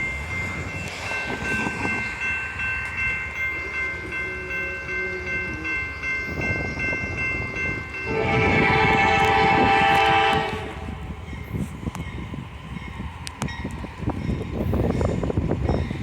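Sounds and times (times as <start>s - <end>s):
crossing bell ringing rapidly: 0.0s - 16.0s
faint train horn: 8.0s - 11.2s.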